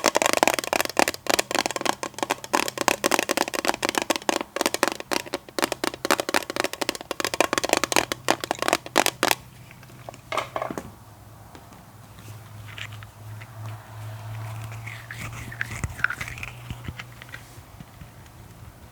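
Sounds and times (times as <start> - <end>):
rapid tapping on hard object: 0.0 - 10.8.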